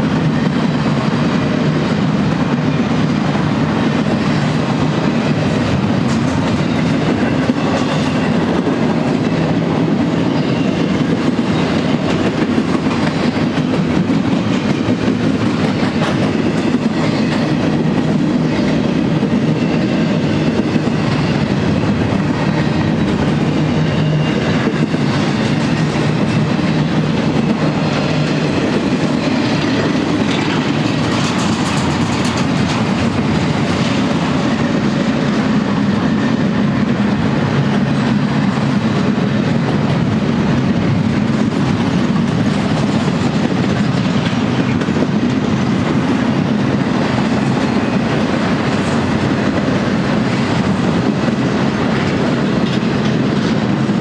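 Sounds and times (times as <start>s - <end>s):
freight train wheels clattering: 0.0s - 54.0s.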